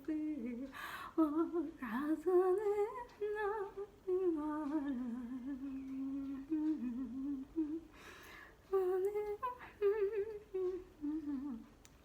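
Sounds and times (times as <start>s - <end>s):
woman humming a melody: 0.0s - 7.9s, 8.7s - 11.8s
woman breathing: 0.7s - 1.2s, 7.9s - 8.7s.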